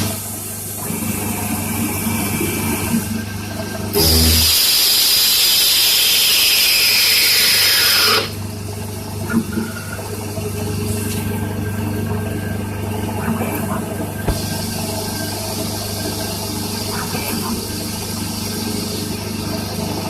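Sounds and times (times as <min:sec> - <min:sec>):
machine low hum: 0:03.2 - 0:04.7
lathe cutting squeal: 0:05.4 - 0:08.3.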